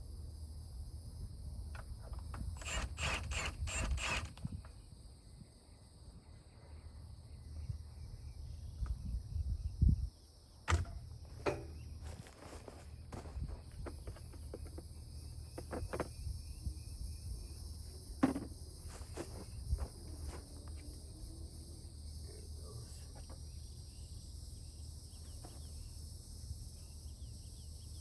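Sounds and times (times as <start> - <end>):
insects chirping: 0.0 - 28.0
sharp metal knocks: 10.7 - 11.8.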